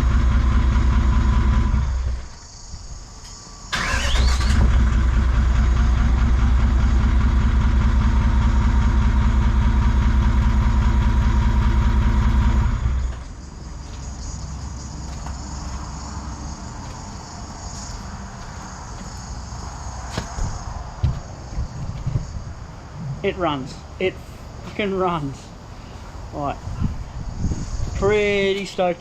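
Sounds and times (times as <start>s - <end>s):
diesel engine running: 0.0s - 20.7s.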